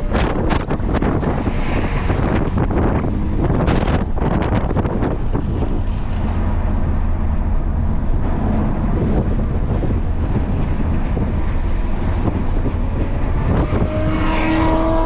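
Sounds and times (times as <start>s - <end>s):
car engine drone: 0.0s - 15.0s
wind buffeting microphone: 0.0s - 15.0s.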